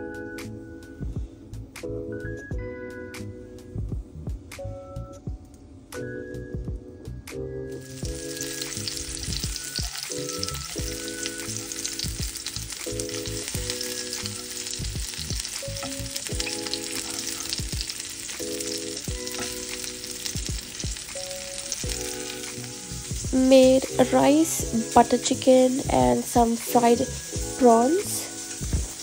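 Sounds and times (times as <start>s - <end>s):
prawns sizzling in oil: 7.6s - 29.0s
spatula turning food in pan: 7.8s - 29.0s.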